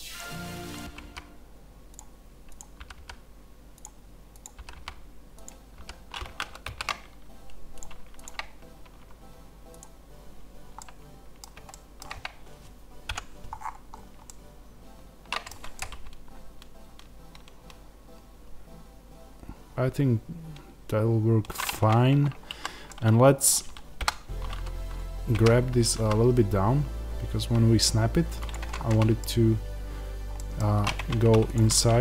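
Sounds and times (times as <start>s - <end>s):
keyboard and mouse clicking: 1.9s - 3.2s, 3.8s - 10.0s, 10.7s - 12.5s, 13.1s - 14.4s, 15.2s - 17.8s, 21.4s - 26.4s, 28.3s - 29.3s, 30.4s - 32.0s.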